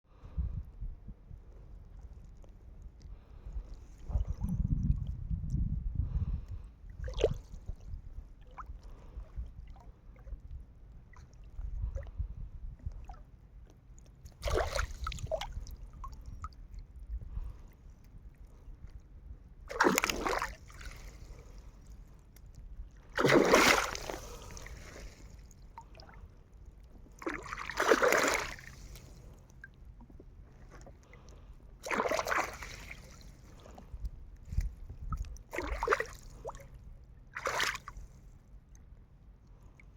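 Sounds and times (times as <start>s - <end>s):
water splashing: 14.3s - 16.1s, 19.7s - 21.3s, 23.2s - 26.2s, 27.1s - 29.7s, 31.8s - 33.8s, 35.1s - 36.6s, 37.3s - 38.0s.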